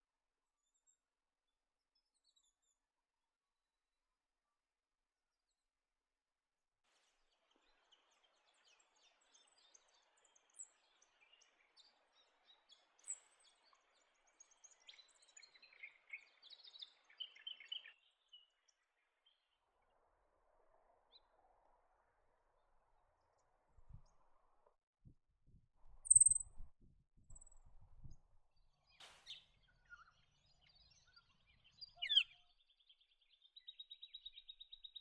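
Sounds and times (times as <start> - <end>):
bird chirps and trills: 26.0 - 26.7, 29.2 - 32.6.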